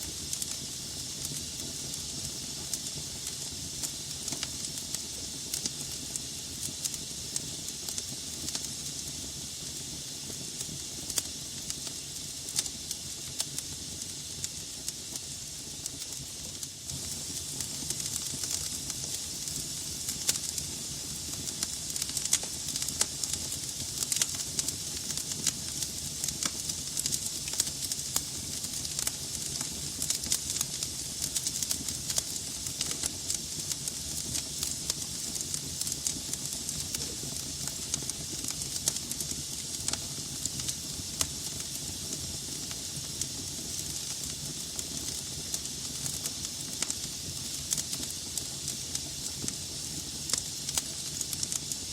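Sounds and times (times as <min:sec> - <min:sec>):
burning logs crackling and popping: 0:00.0 - 0:51.9
hiss of flames: 0:00.0 - 0:51.9.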